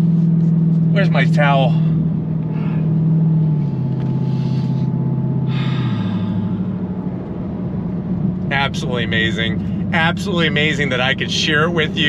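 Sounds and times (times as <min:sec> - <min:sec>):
car engine droning: 0:00.0 - 0:12.0
person exhaling heavily: 0:01.8 - 0:03.0, 0:05.5 - 0:06.8.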